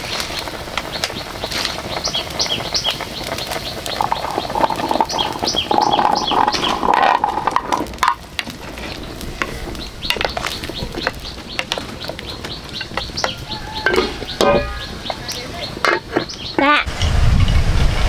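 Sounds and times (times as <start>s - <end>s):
clicks and rustles: 0.0s - 17.6s
rough animal-like sound: 4.0s - 8.0s.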